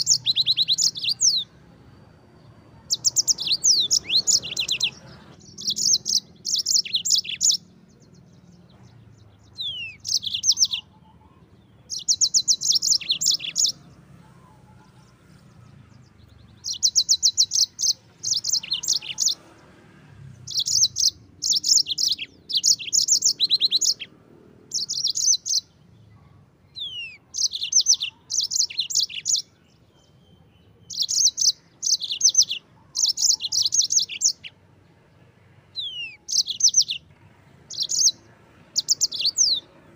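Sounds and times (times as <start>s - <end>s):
canary singing trilled notes: 0.0s - 19.6s, 20.3s - 25.9s, 26.7s - 34.6s, 35.5s - 39.9s.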